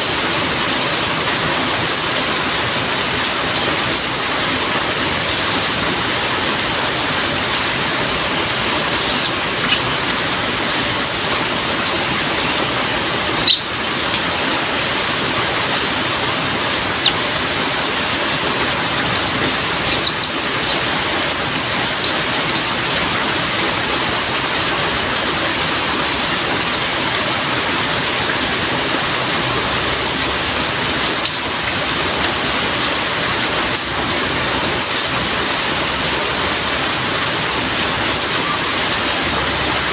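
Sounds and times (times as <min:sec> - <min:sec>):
heavy rainfall: 0:00.0 - 0:39.9
short high chirps: 0:13.5 - 0:13.7.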